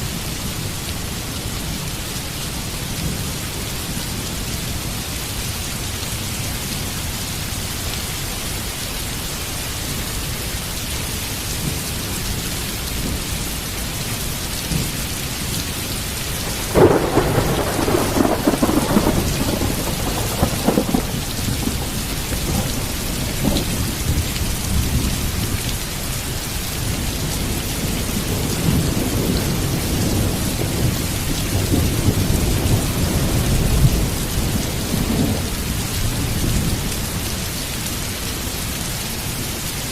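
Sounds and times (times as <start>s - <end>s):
heavy rain: 0.0s - 39.9s
thunder cracking and rumbling: 16.3s - 25.6s, 26.8s - 36.8s.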